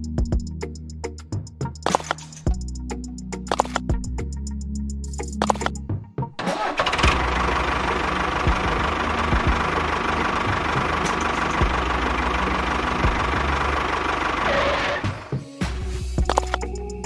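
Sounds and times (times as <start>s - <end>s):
small engine running: 6.5s - 15.3s.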